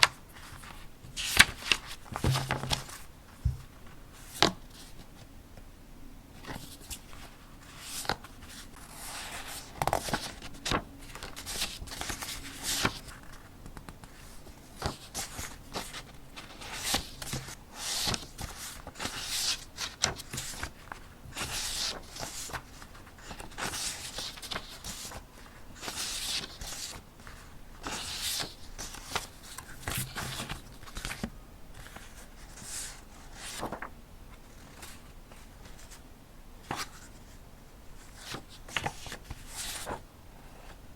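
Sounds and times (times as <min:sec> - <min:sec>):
paper rustling: 0:00.0 - 0:05.0, 0:14.8 - 0:25.2, 0:25.8 - 0:36.0, 0:38.0 - 0:40.0.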